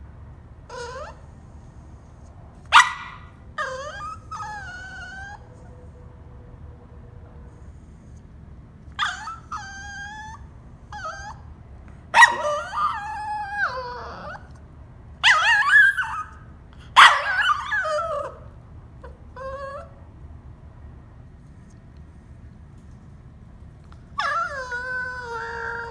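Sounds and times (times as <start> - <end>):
dog whining: 0.7 - 1.4, 2.7 - 5.8, 9.0 - 11.5, 12.2 - 14.6, 15.2 - 16.4, 17.0 - 20.0, 24.2 - 25.9.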